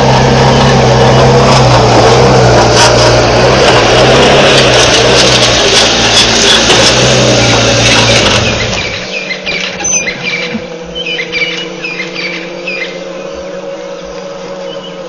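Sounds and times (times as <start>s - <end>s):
steady low hum: 0.0s - 15.0s
small birds chirping: 8.1s - 15.0s.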